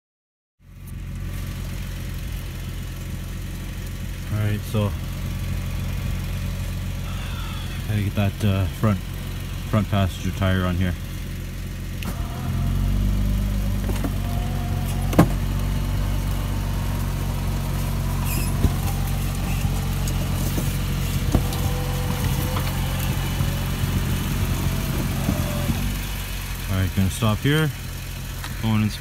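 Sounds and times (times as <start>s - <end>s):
engine idling: 0.6s - 29.0s
winch running under load: 2.2s - 29.0s.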